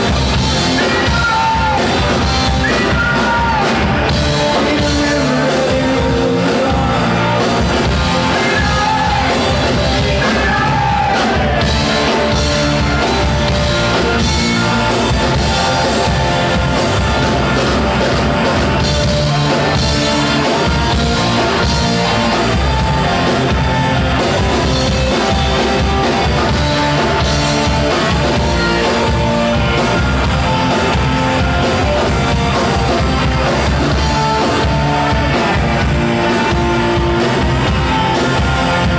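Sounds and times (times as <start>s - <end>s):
bass guitar: 0.0s - 38.9s
drums: 0.0s - 38.9s
electric guitars: 0.0s - 38.9s
person singing: 0.4s - 13.1s.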